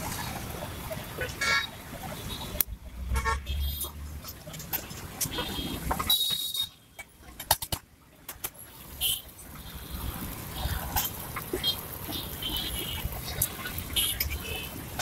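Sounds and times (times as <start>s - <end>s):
vehicle horn toots: 5.3s - 6.7s.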